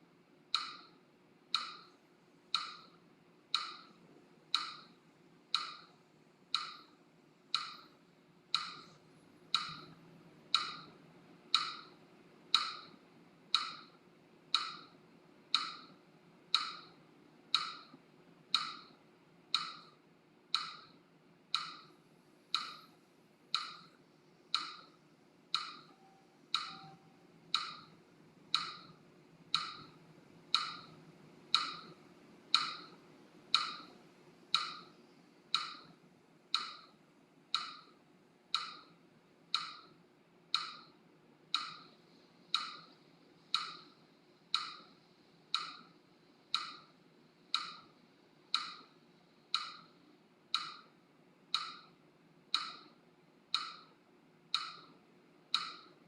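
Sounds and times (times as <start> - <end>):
metronome clicking: 2.5 - 3.9, 7.5 - 7.9, 8.5 - 10.9, 11.5 - 11.9, 23.6 - 24.9, 25.5 - 27.9, 28.5 - 29.0, 29.6 - 30.0, 30.6 - 30.9, 31.5 - 34.0.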